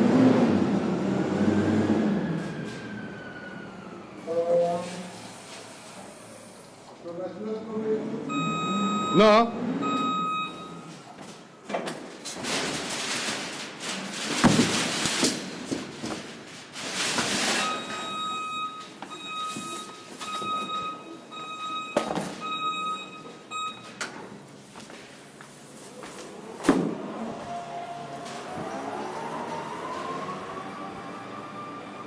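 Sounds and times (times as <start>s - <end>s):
industrial warning beeper: 8.3s - 11.1s, 17.6s - 24.0s.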